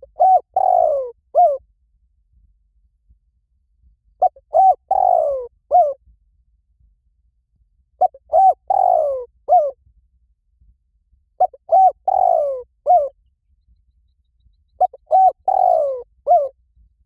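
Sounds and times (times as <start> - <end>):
dove cooing: 0.0 - 1.6, 4.2 - 6.0, 8.0 - 9.8, 11.4 - 13.2, 14.8 - 16.5.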